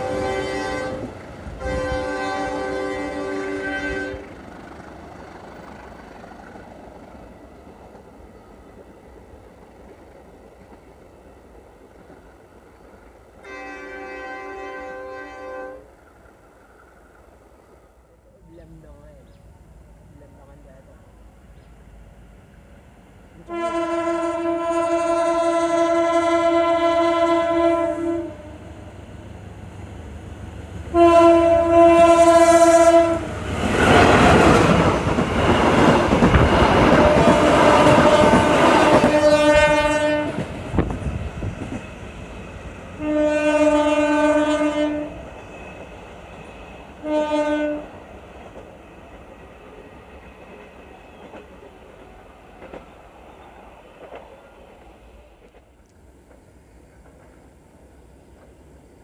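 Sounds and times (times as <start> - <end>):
train horn blasts: 0.0 - 4.4, 13.4 - 15.9, 23.4 - 28.7, 30.9 - 34.4, 36.4 - 40.5, 43.0 - 45.3, 47.0 - 48.0
train passing with rushing rumble: 0.0 - 59.0
train wheels clattering: 33.5 - 42.7, 48.2 - 57.5.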